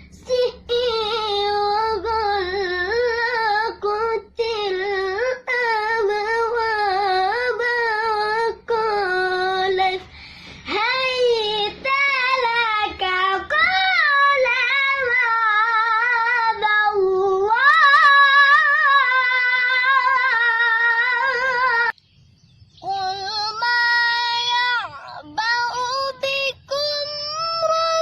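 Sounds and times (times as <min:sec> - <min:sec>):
boy chanting melodic recitation: 0:22.8 - 0:28.0.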